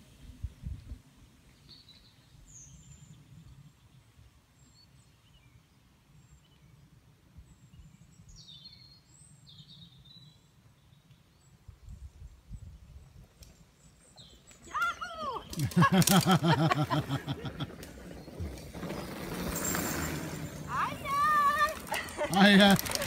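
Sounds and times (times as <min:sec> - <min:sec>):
wind rumble on microphone: 0:00.0 - 0:04.1, 0:11.6 - 0:13.5.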